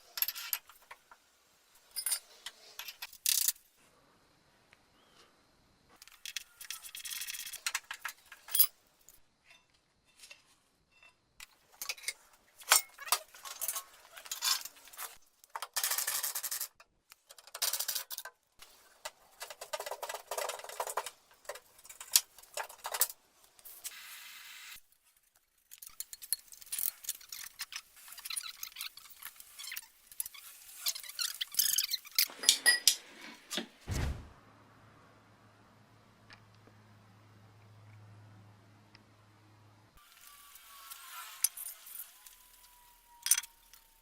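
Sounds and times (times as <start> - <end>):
metal tools clinking and rattling: 1.9 - 3.6, 11.8 - 18.3, 25.7 - 33.0.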